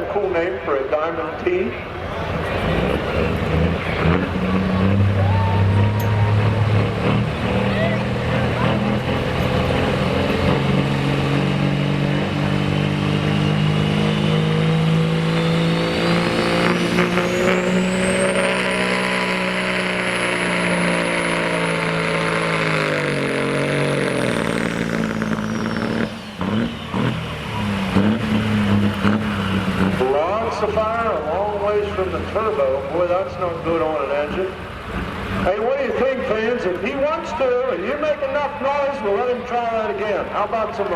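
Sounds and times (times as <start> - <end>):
diesel truck engine under load: 0.0 - 40.9.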